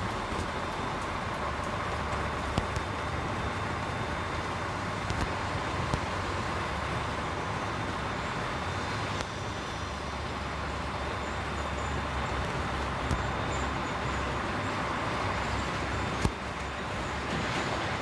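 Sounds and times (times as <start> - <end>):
faint clicks: 0.0 - 3.1, 5.0 - 5.3, 12.4 - 13.2
road noise: 0.0 - 18.0
truck engine running: 0.0 - 18.0.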